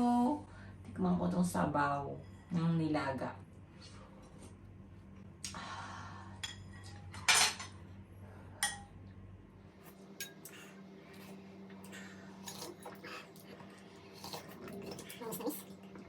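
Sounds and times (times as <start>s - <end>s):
low steady hum: 0.0s - 16.0s
utensils scraping and clinking dishes: 10.2s - 11.3s, 12.4s - 15.7s.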